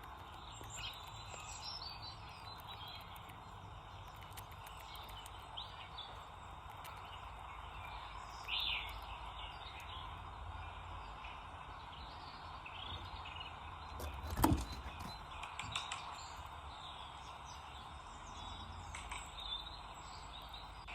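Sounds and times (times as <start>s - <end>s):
faint clicks: 0.0s - 10.0s
small birds chirping: 0.0s - 20.9s.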